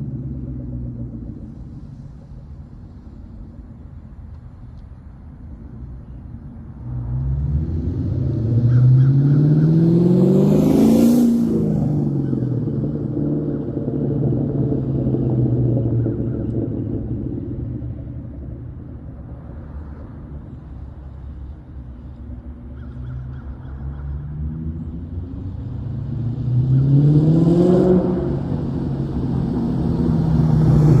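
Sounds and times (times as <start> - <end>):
car engine revving: 6.8 - 20.9, 24.2 - 31.0.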